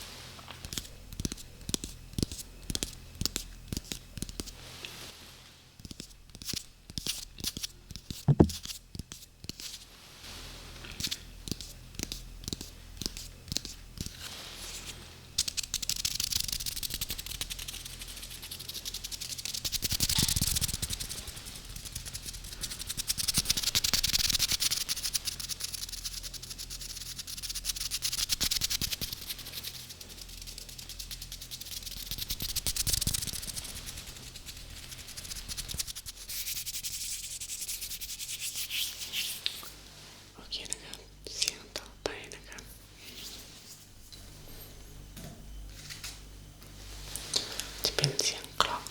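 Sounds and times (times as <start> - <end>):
scratchy rubbing on a surface: 11.5 - 39.7.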